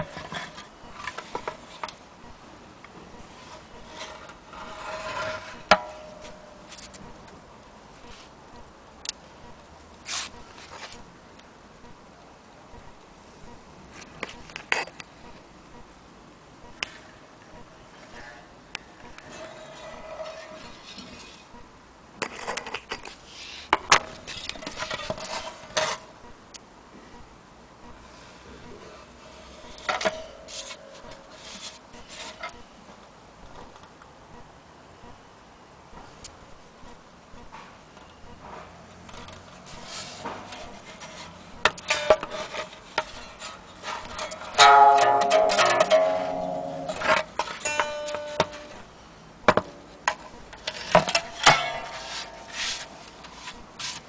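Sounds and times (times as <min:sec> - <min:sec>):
faint ringing tone: 0:27.0 - 0:32.8, 0:44.5 - 0:49.1
clicks and knocks: 0:43.9 - 0:48.9
mandolin strings strummed: 0:44.6 - 0:48.8
rubbing on instrument body: 0:51.8 - 0:54.0.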